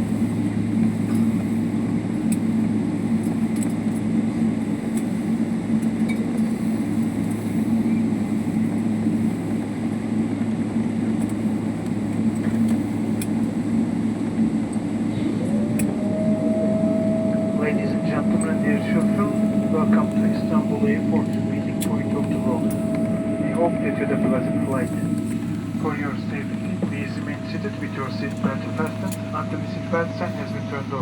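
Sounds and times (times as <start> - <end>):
low rumble of aircraft engines: 0.0 - 31.0
steady tone: 15.4 - 31.0.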